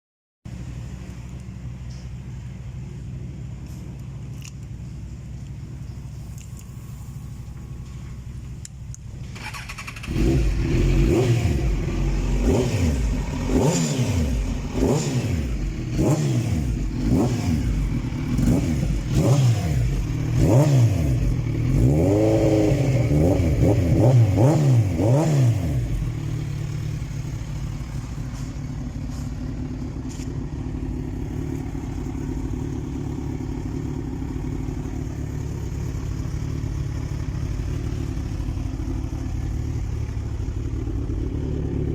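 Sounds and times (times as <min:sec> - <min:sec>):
motorcycle engine idling: 0:00.5 - 0:41.9
motorcycle engine revving: 0:09.2 - 0:41.9.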